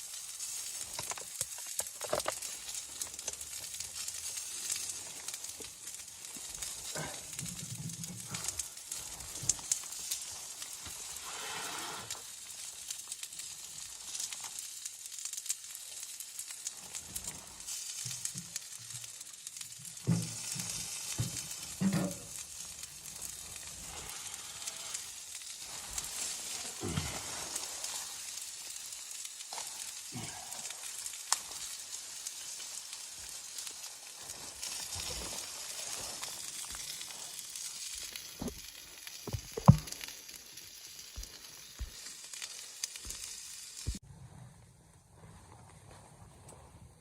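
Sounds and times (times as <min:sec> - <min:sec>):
food sizzling: 0:00.0 - 0:44.0.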